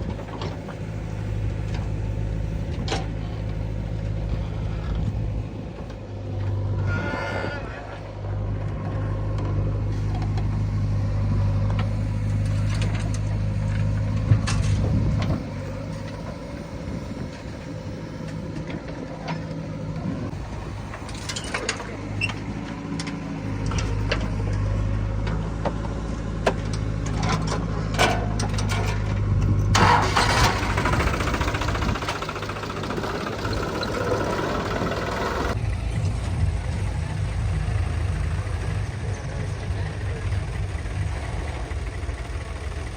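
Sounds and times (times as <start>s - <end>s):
heavy diesel engine running: 0.0s - 42.9s
knocks and clanks: 11.6s - 15.4s.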